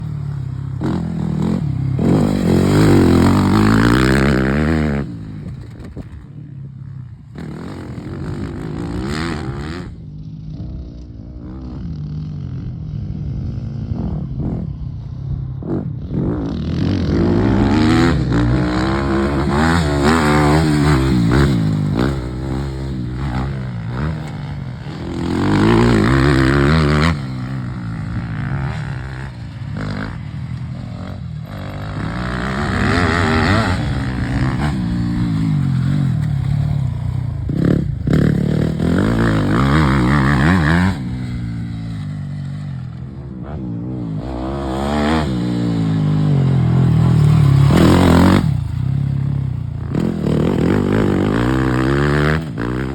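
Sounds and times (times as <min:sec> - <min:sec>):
motocross bike engine revving: 0:00.0 - 0:06.1, 0:16.2 - 0:52.9.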